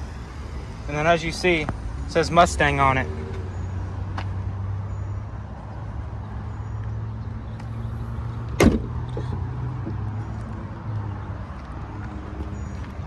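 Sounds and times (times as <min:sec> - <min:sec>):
car hood slamming shut: 0:08.6 - 0:09.0.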